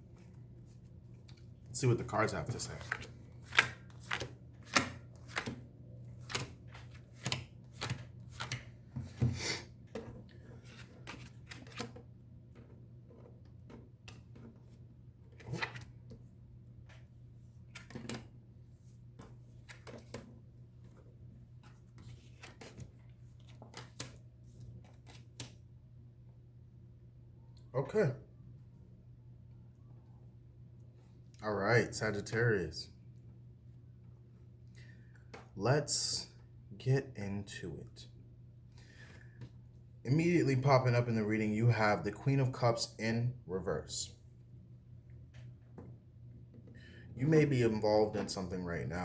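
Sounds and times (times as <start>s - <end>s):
cards being shuffled: 2.5s - 5.6s, 6.2s - 9.2s, 9.9s - 12.0s, 15.3s - 16.0s
cards snapping and tapping: 2.9s - 5.6s.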